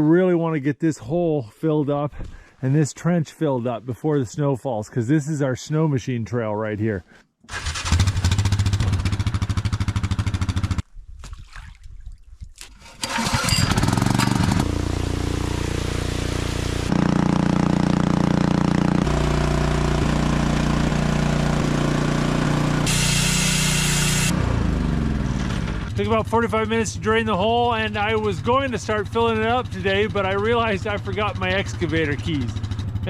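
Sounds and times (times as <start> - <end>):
engine running: 13.0 - 33.0.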